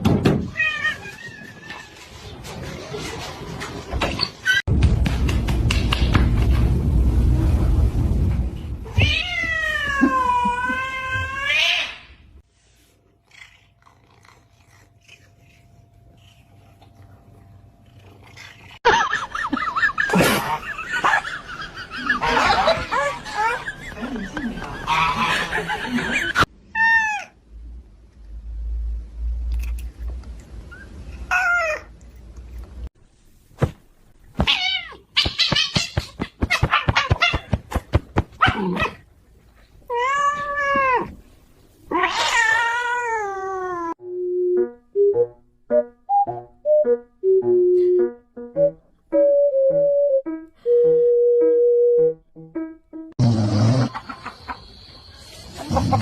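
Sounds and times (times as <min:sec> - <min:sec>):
low rumble: 0:04.7 - 0:09.0
cat yowling: 0:26.8 - 0:27.4, 0:41.9 - 0:44.0.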